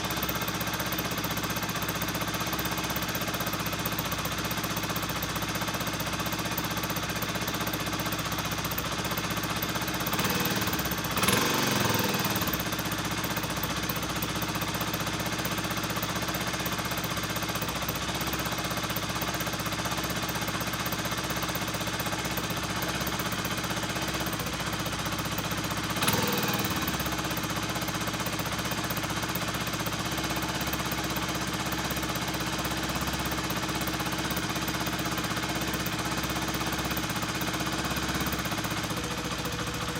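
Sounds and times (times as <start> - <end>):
motorcycle engine idling: 0.0 - 39.9
motorcycle engine revving: 9.9 - 14.3, 22.4 - 31.6, 35.3 - 39.9.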